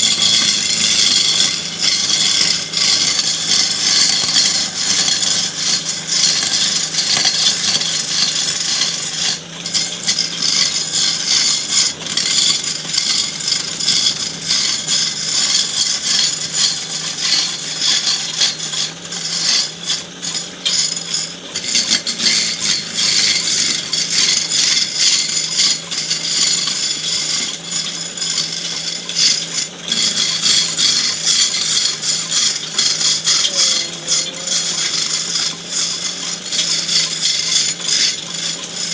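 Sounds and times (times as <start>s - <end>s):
tool scraping and rasping wood: 0.0s - 38.9s.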